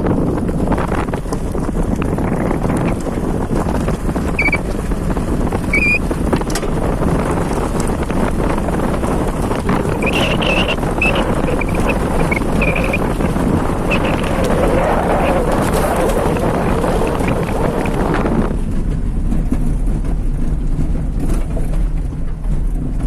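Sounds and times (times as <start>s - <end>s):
wind buffeting microphone: 0.0s - 23.0s
short high chirps: 4.4s - 4.6s, 5.7s - 6.0s.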